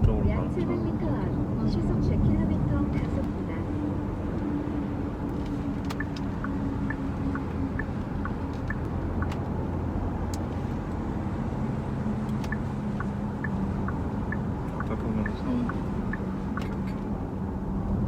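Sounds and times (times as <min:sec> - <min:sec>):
road and engine hum in car: 0:00.0 - 0:18.0.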